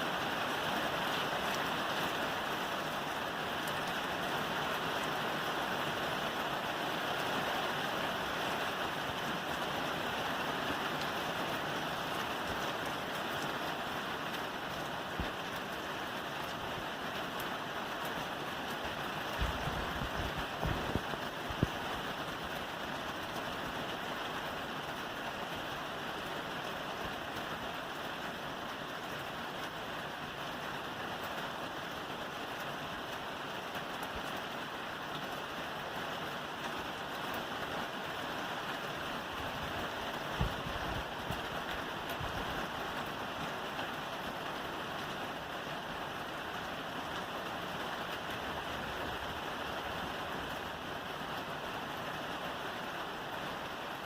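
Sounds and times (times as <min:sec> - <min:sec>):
rain on a roof: 0:00.0 - 0:54.0.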